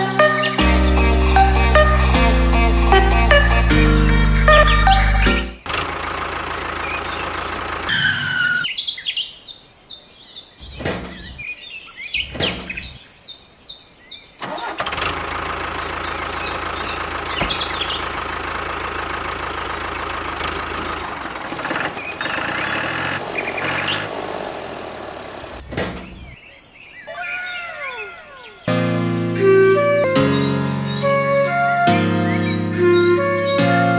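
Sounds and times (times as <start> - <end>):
birds chirping: 0.0 - 28.8, 29.4 - 33.9
small water pump engine: 5.6 - 7.9, 14.5 - 25.6.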